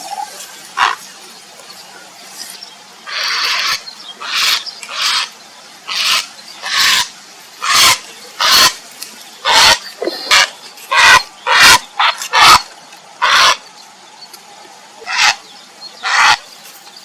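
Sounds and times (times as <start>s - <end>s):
heron harsh rasping calls: 0.8s - 1.0s, 3.1s - 5.3s, 5.9s - 8.8s, 9.4s - 12.6s, 13.2s - 13.6s, 15.0s - 15.4s, 16.0s - 16.4s.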